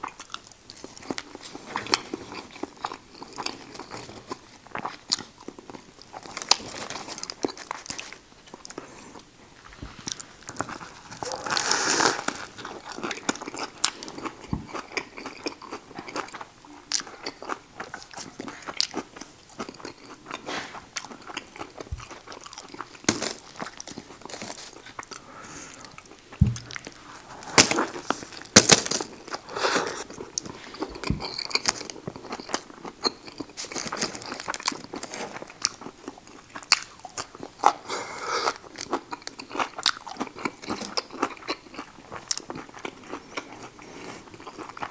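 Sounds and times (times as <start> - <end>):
biting and chewing sandwich: 10.0 - 25.2.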